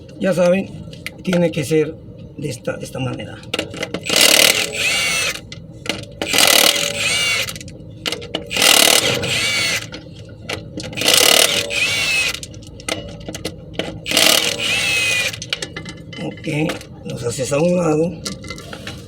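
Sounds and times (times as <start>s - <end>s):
impact wrench spinning: 4.0s - 5.4s, 6.2s - 7.6s, 8.5s - 9.9s, 11.0s - 12.5s, 14.1s - 15.5s.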